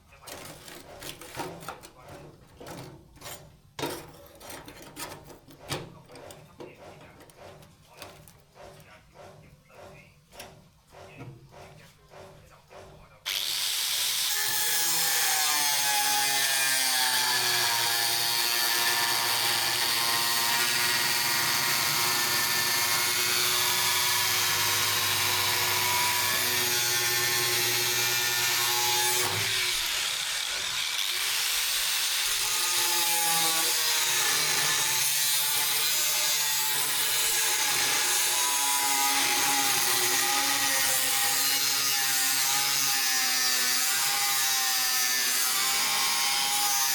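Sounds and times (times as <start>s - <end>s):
power tool grinding steel: 13.3s - 46.9s.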